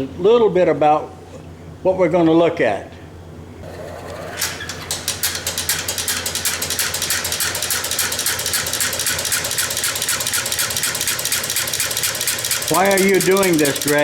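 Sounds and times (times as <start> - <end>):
ignitor mechanism clicking rapidly: 4.0 - 14.0.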